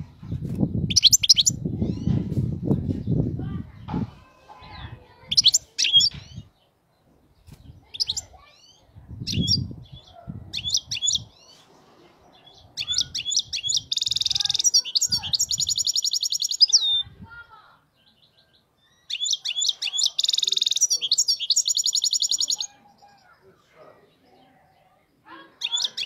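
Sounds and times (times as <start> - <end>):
goldfinch singing: 0.9 - 2.2, 5.2 - 6.6, 7.8 - 11.6, 12.3 - 17.2, 17.9 - 23.2, 25.6 - 26.0.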